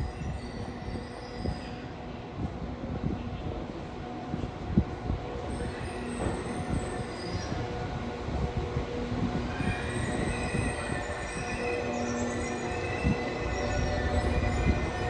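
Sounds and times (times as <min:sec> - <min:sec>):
train wheels squealing on rails: 0:00.0 - 0:02.2, 0:05.4 - 0:15.0.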